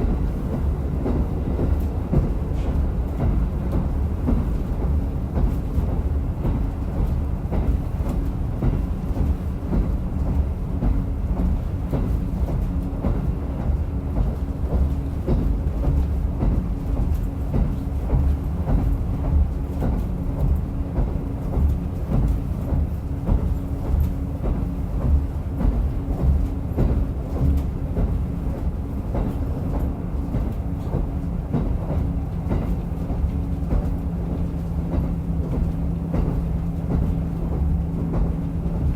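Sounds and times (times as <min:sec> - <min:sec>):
rail clicks: 0:00.0 - 0:04.8
railcar engine and wheels rumbling: 0:00.0 - 0:38.9.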